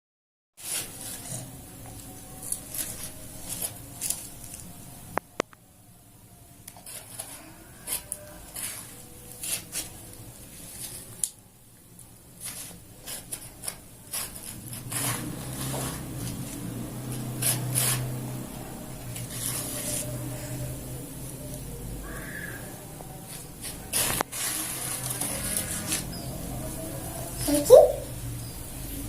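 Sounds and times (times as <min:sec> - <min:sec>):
sand scooped and poured: 0:23.6 - 0:26.1.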